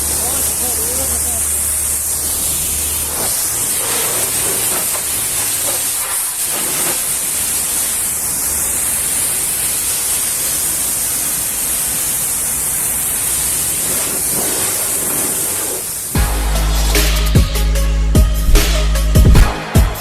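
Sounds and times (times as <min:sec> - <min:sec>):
pressure washer spraying water: 0:00.0 - 0:19.5.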